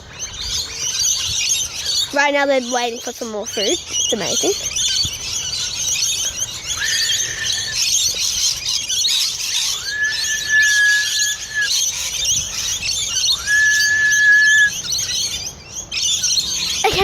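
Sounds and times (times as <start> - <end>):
flock of lorikeets chattering: 0.0 - 17.0
person whistling: 10.0 - 11.7, 13.5 - 14.7.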